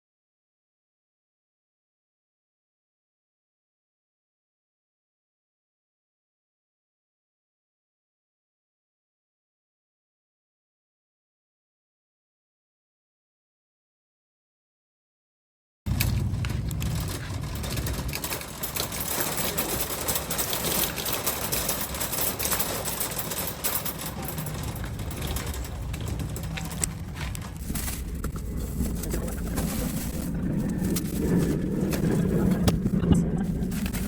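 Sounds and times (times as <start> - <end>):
moving vehicle rumble: 15.9 - 34.0.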